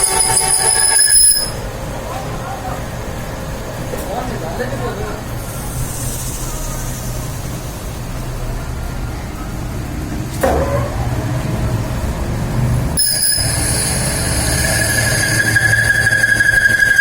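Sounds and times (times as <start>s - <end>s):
lathe humming: 0.0s - 1.7s, 13.0s - 17.0s
high steady whine: 13.0s - 17.0s.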